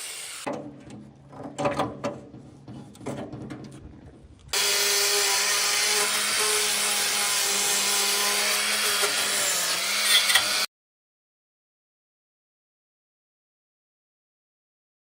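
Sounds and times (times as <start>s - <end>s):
power tool grinding: 4.5s - 10.7s.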